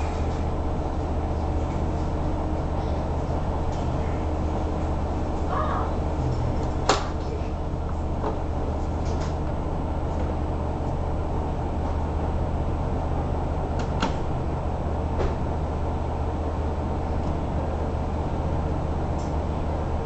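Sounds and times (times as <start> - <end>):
diesel railcar rumble: 0.0 - 20.0.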